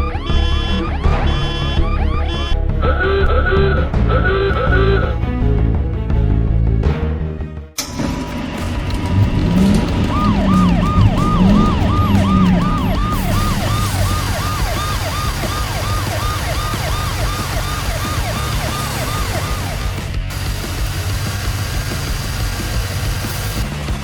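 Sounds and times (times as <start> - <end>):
siren yelping: 0.0 - 5.1, 8.7 - 20.1
low rumble: 7.8 - 20.5.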